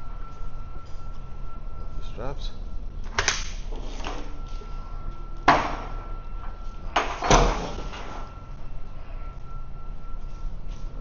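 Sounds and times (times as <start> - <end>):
faint steady high tone: 0.0 - 3.0, 4.2 - 11.0.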